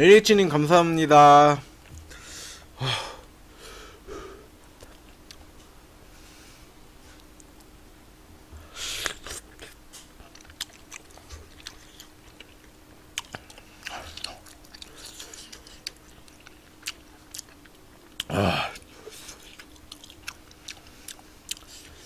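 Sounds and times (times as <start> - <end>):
faint steady hum: 0.0 - 22.0
close chewing and biting: 9.0 - 22.0.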